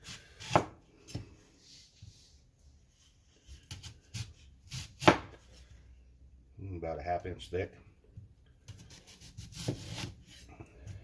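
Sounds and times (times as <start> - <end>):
knife slicing onion: 0.0 - 1.8, 3.4 - 5.6, 8.6 - 11.0.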